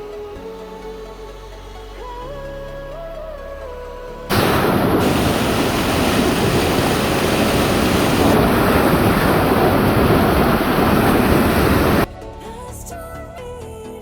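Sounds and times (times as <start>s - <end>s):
fast-flowing river rushing: 4.3s - 12.1s.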